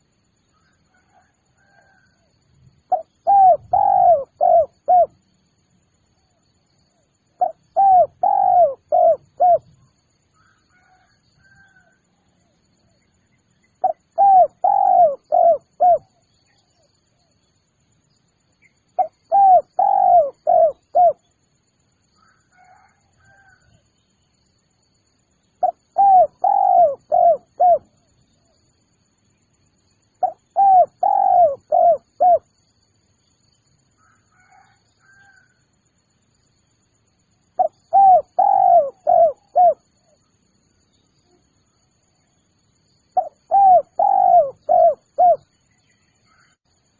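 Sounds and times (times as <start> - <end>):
faint small bird chirps: 0.0 - 35.6, 36.2 - 46.9
dove cooing: 2.9 - 5.2, 7.4 - 9.8, 13.8 - 16.2, 19.0 - 21.2, 25.6 - 28.0, 30.2 - 32.5, 37.6 - 39.9, 43.2 - 45.5.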